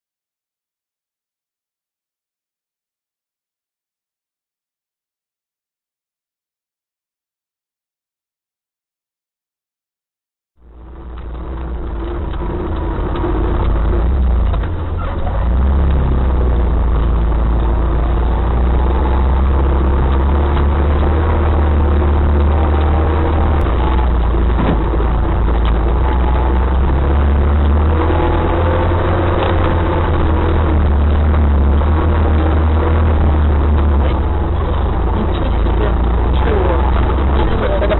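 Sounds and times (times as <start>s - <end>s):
off-road vehicle engine running: 10.6s - 37.9s.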